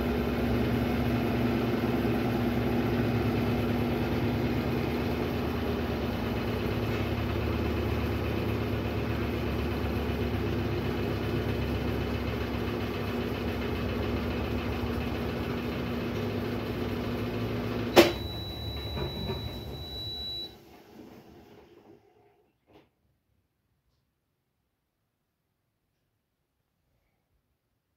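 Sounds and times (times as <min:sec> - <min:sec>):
washing machine humming: 0:00.0 - 0:22.5
washing machine click: 0:17.9 - 0:19.8.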